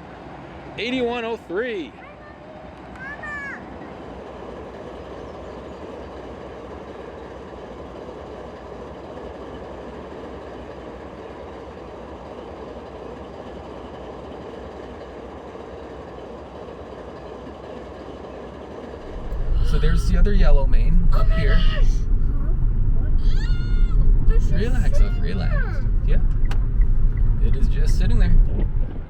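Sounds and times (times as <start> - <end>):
freight train wheels on rail: 2.2 - 29.0.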